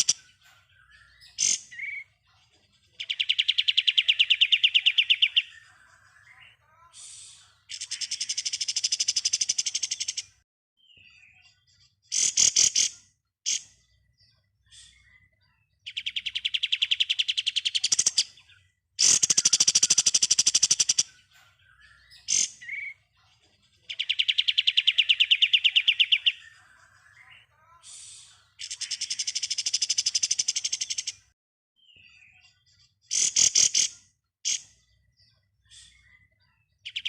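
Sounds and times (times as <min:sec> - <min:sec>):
bird rapid rattling trills: 0:19.0 - 0:21.1.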